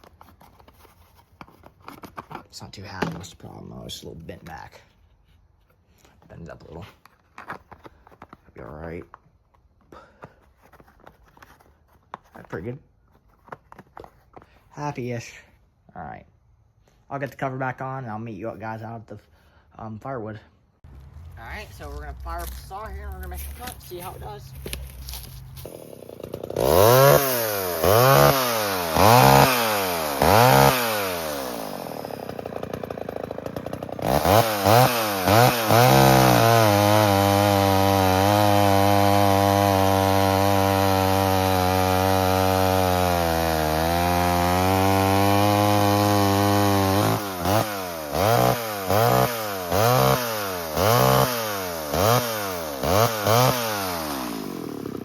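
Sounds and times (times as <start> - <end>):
chainsaw cutting wood: 20.9 - 55.0
chainsaw revving: 20.9 - 55.0.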